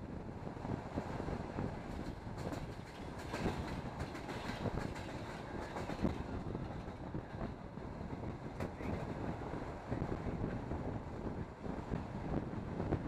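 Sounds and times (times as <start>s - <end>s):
train wheels clacking: 1.8s - 7.1s.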